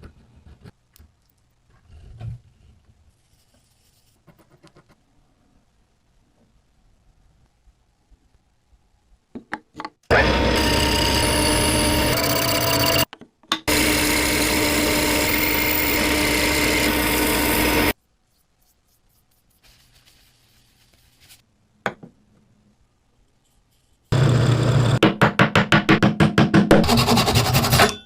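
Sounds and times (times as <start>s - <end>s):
coffee grinder running: 10.1s - 13.1s, 13.7s - 18.0s.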